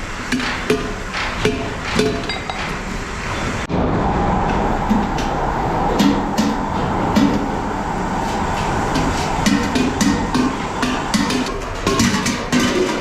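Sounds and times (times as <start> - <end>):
steady machine drone: 0.0 - 13.0.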